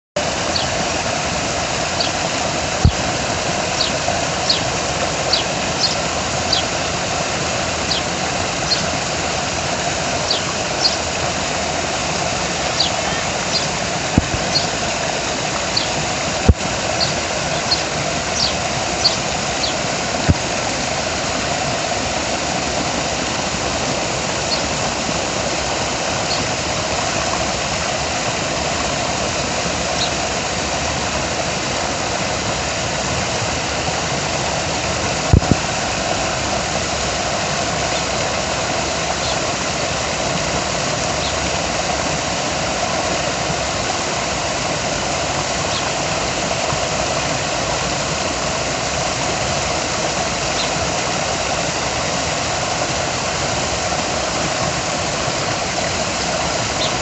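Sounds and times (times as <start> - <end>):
small birds chirping: 0.5 - 0.8, 1.9 - 6.8, 7.8 - 9.0, 10.2 - 11.1, 12.6 - 14.9, 15.6 - 16.0, 16.8 - 19.8, 24.4 - 24.8, 26.2 - 26.5, 30.0 - 30.2, 39.2 - 39.4, 41.2 - 41.4, 50.5 - 50.8, 56.8 - 57.0.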